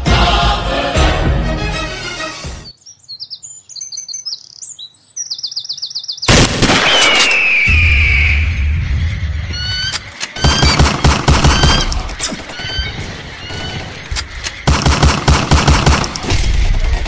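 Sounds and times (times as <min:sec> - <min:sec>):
music: 0:00.0 - 0:02.7
birds chirping: 0:02.4 - 0:17.0
loud rushing noise with whistle: 0:07.2 - 0:08.8.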